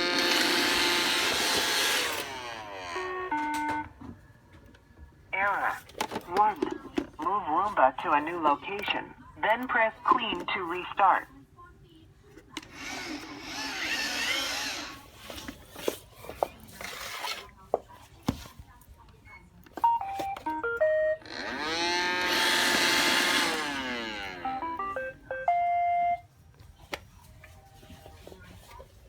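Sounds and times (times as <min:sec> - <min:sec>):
motor whir sweeping in pitch: 0:00.0 - 0:03.2, 0:12.8 - 0:15.0, 0:21.2 - 0:24.7
robot vacuum electronic beeps: 0:21.4 - 0:26.2.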